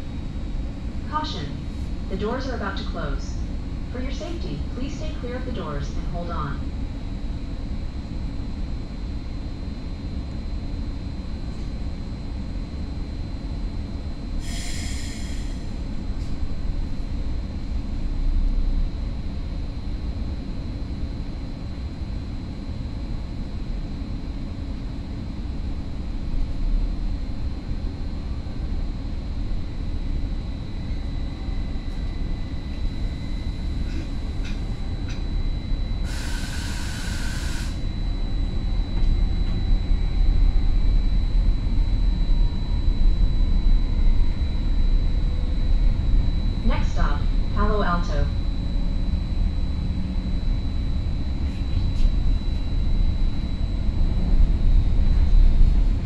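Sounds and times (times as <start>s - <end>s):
train running gear rumble: 26.1s - 35.4s, 36.0s - 42.2s, 51.2s - 56.0s.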